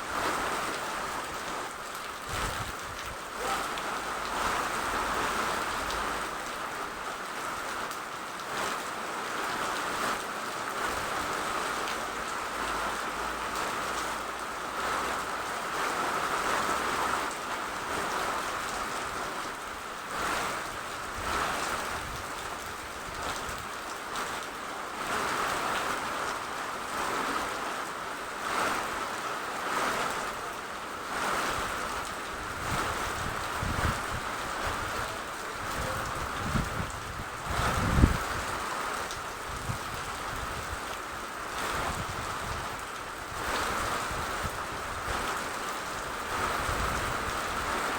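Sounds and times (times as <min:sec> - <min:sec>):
steady rain: 0:00.0 - 0:47.9.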